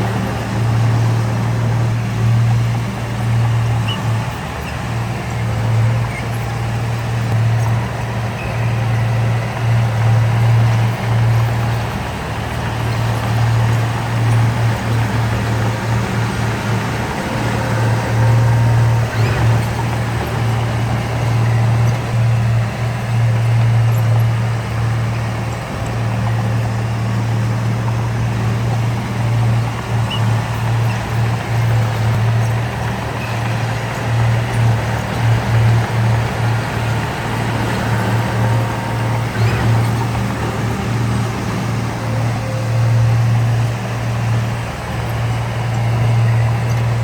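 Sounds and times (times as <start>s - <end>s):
diesel engine droning: 0.0s - 47.0s.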